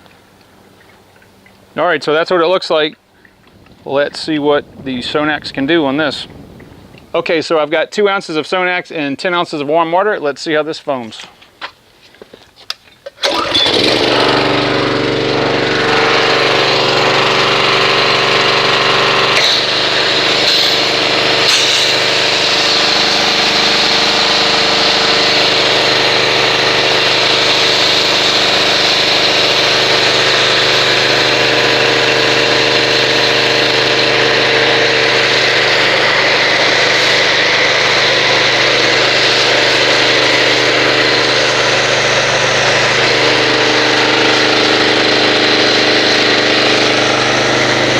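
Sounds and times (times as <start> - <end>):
pressure washer motor running: 13.2 - 47.9.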